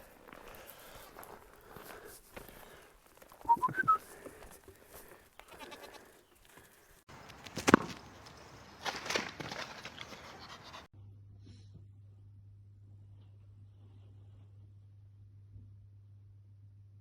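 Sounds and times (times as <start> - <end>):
high whistle-like notes: 3.5 - 4.0
goat bleating: 5.4 - 6.2.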